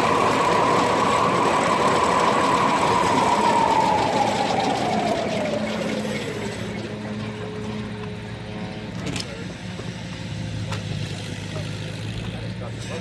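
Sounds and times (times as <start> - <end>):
circular saw blade whine: 0.0 - 8.7
machinery noise: 0.0 - 10.1.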